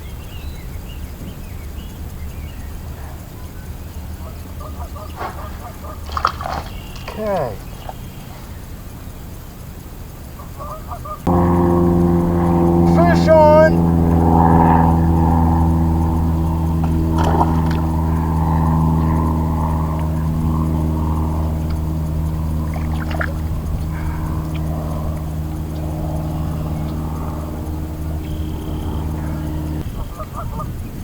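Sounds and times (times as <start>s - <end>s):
motorboat engine running: 0.0s - 31.0s
water splashes: 5.2s - 8.6s, 16.8s - 19.4s, 21.3s - 25.0s.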